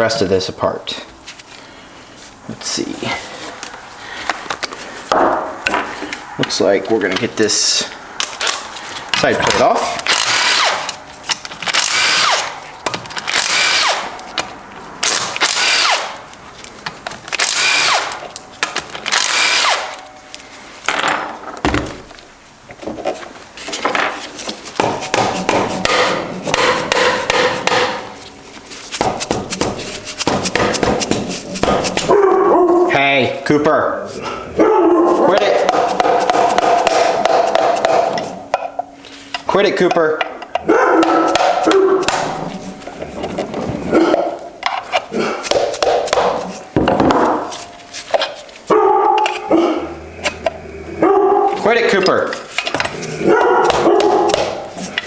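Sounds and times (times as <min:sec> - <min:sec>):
hammer blows on metal case: 0:29.0 - 0:32.1
dog barking: 0:32.1 - 0:32.9, 0:34.6 - 0:35.4, 0:40.7 - 0:42.1, 0:48.7 - 0:49.8, 0:51.0 - 0:51.6, 0:53.2 - 0:54.4.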